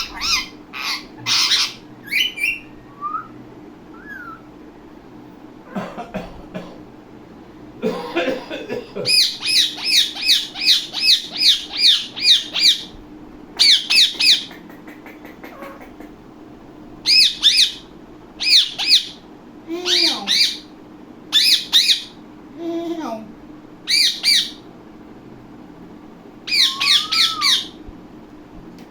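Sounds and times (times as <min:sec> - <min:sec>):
parakeet screeching: 0:00.0 - 0:02.8, 0:04.0 - 0:04.5, 0:09.1 - 0:13.0, 0:13.6 - 0:14.5, 0:15.5 - 0:15.9, 0:17.0 - 0:19.2, 0:19.8 - 0:20.7, 0:21.3 - 0:22.2, 0:23.9 - 0:24.6, 0:26.5 - 0:27.8
soft low parakeet sounds: 0:00.0 - 0:03.2, 0:13.6 - 0:16.3.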